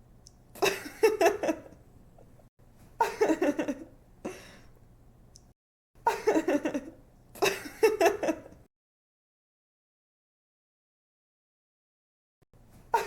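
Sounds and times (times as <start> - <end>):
young woman giggling: 0.6 - 1.8, 3.0 - 4.4, 6.0 - 8.6.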